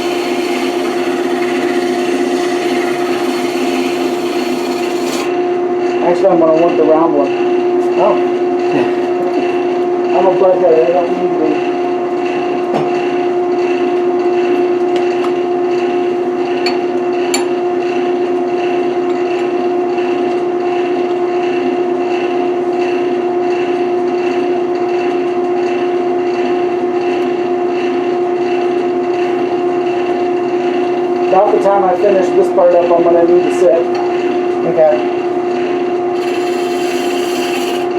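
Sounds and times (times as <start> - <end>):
wood lathe motor hum: 0.0 - 5.5, 35.0 - 37.9.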